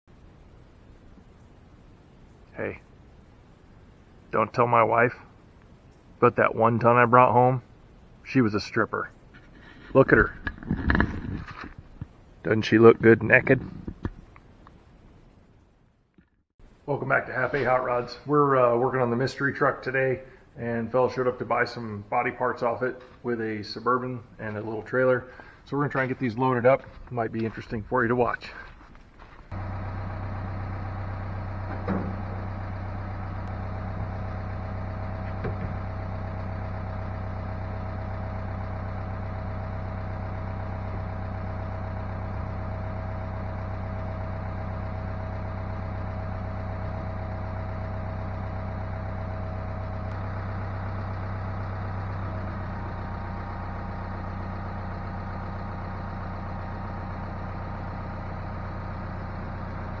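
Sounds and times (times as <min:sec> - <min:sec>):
engine idling: 0:17.3 - 1:00.0.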